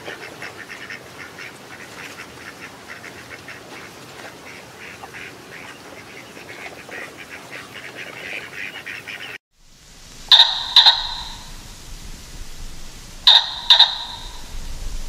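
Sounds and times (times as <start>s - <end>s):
duck calling: 10.1s - 15.0s.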